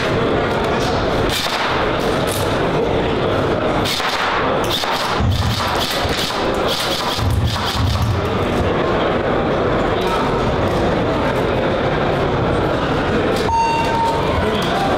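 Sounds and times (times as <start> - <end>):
airsoft gun shots: 1.3 - 2.0, 3.8 - 8.2.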